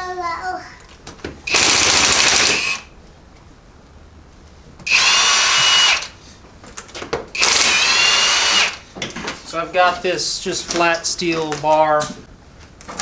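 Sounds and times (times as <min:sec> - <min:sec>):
power tool whining: 0:01.4 - 0:02.9, 0:04.9 - 0:06.2, 0:07.3 - 0:08.9.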